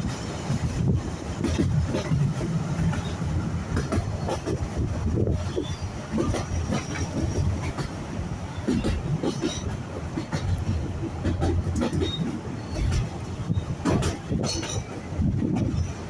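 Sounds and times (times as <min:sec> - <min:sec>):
railway carriage rumble: 0:00.0 - 0:16.0
wheels clicking on rails: 0:00.0 - 0:16.0.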